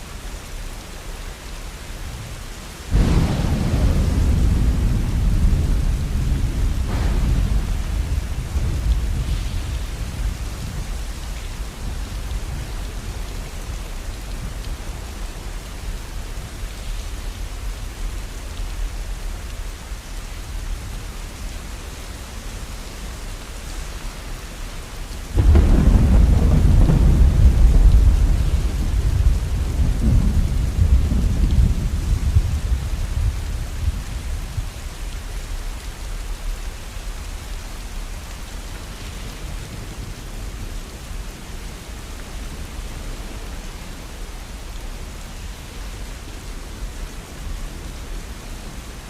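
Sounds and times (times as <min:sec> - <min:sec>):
steady rain: 0:00.0 - 0:49.0
deep thunder rumble: 0:02.9 - 0:19.2, 0:25.2 - 0:35.0.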